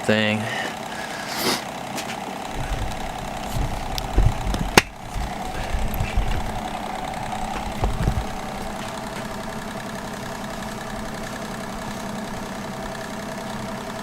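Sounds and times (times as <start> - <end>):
chainsaw engine idling: 0.0 - 14.0.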